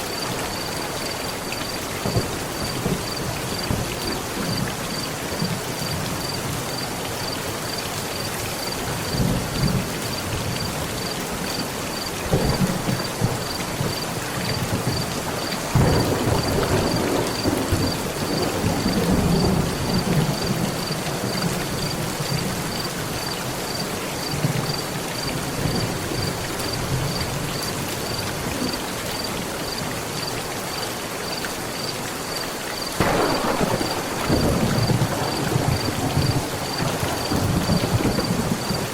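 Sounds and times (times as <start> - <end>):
rain drumming on a metal roof: 0.0 - 38.9
thunder rumbling: 12.0 - 21.9, 33.0 - 38.9.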